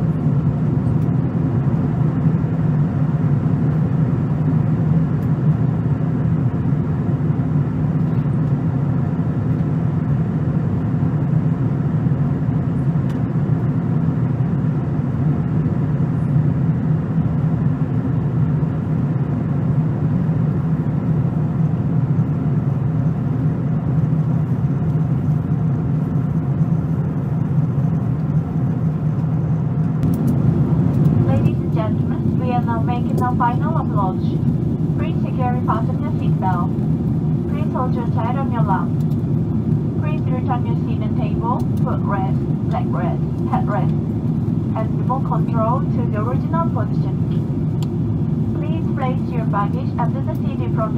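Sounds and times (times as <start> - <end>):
airliner cabin drone: 0.0 - 50.9.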